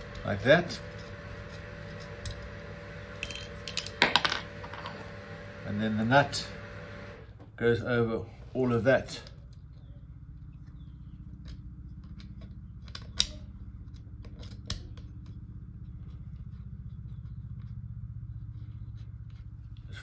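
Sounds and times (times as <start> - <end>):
low hum: 0.0 - 8.8
small metal clicks and taps: 11.4 - 15.3.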